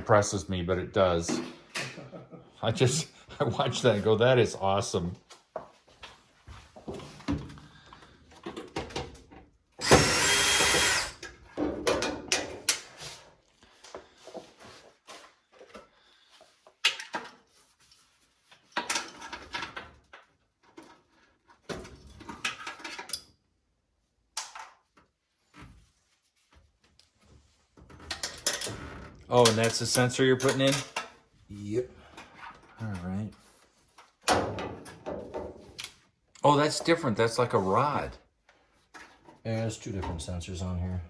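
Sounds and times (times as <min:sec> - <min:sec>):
knocks and rattles of parts: 0:06.6 - 0:13.0, 0:16.8 - 0:17.6, 0:18.6 - 0:23.3, 0:27.7 - 0:31.3, 0:32.1 - 0:36.0
power drill running: 0:09.8 - 0:11.3.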